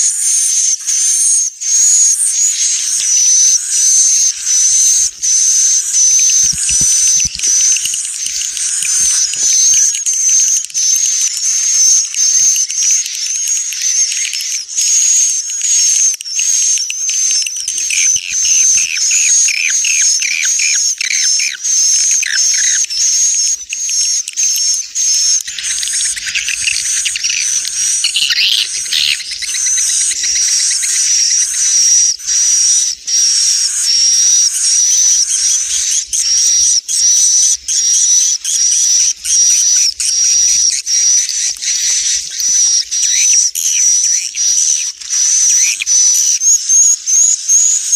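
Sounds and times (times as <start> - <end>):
lower bird chirps: 0.0 - 47.9
swiftlet chattering twitter: 0.0 - 47.9.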